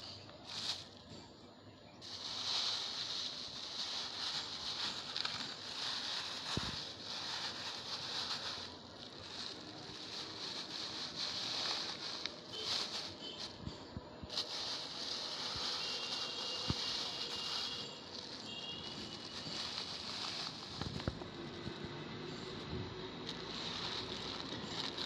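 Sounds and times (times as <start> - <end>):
light rustling: 2.0 - 21.6.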